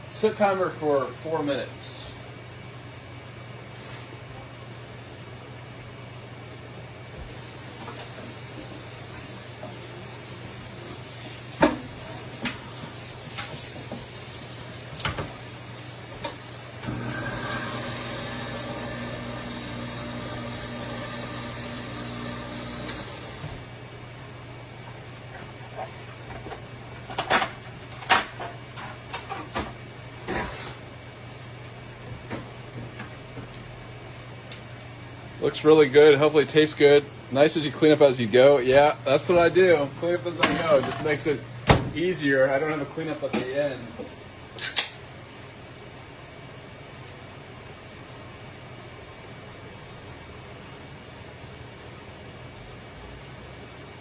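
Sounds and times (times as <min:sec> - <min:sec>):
kitchen tap running: 0:07.2 - 0:23.7.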